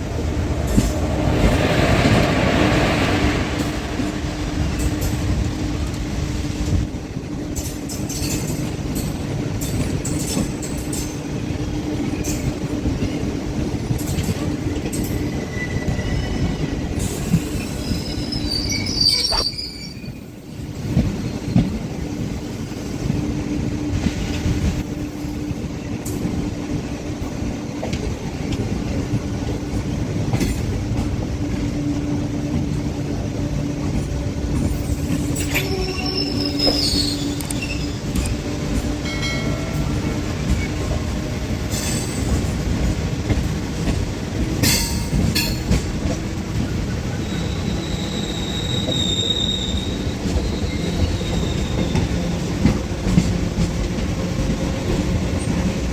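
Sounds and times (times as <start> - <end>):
train wheels rumbling on rail: 0.0 - 55.9
high-pitched wheel squeals: 17.6 - 20.2, 35.4 - 38.1, 47.1 - 52.1.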